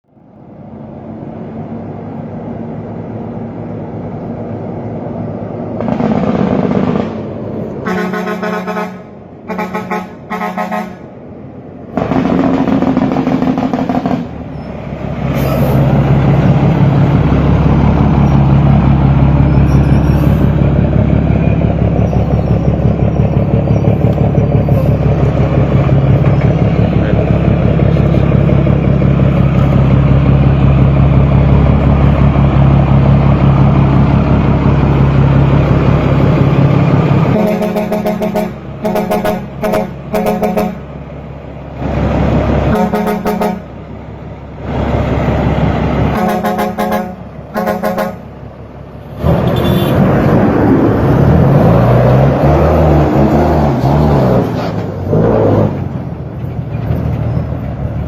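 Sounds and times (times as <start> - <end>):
diesel bus engine running: 0.0 - 58.0
bus horn blasts: 7.8 - 11.1, 37.3 - 40.9, 42.7 - 43.8, 46.1 - 48.3, 49.4 - 50.0.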